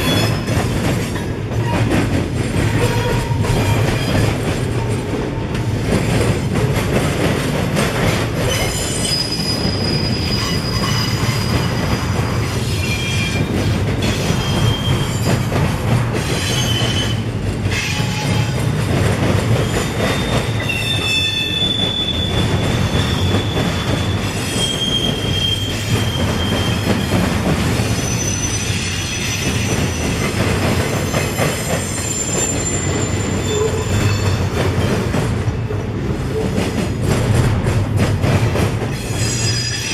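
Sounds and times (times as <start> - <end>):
train wheels rumbling on rail: 0.0 - 39.9
high-pitched wheel squeals: 8.5 - 11.9, 28.0 - 30.2, 31.5 - 34.4, 39.0 - 39.9.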